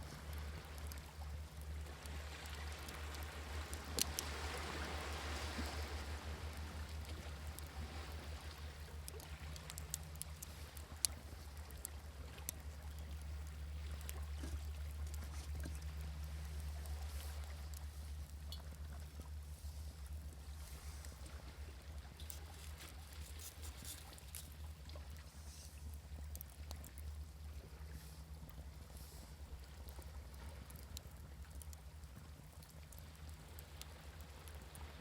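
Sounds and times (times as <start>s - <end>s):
sea waves: 0.0s - 25.9s
low rumble of surf: 0.0s - 35.0s.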